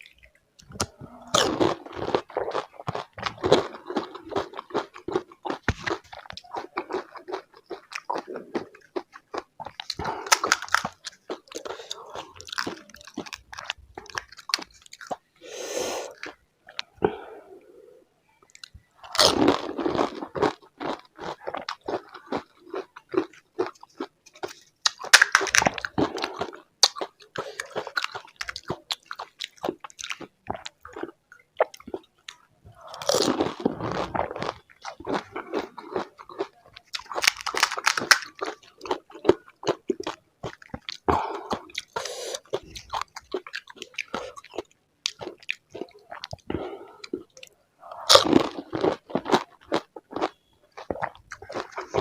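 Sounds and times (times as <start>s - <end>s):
wet chewing: 0.0s - 15.3s, 18.5s - 52.0s
crisp shells crunching when bitten: 0.7s - 15.2s, 19.0s - 30.7s, 33.0s - 41.1s.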